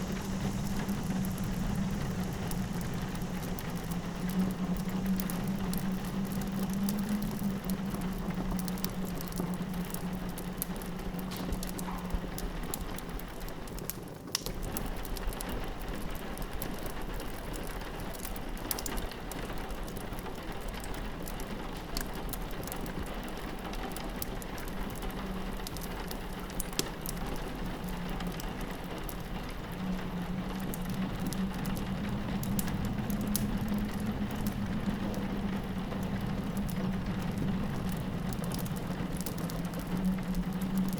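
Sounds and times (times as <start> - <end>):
low wind drone: 0.0 - 12.5, 27.4 - 40.9
rain pattering on window: 0.0 - 40.9
wood fire crackling: 0.0 - 40.9.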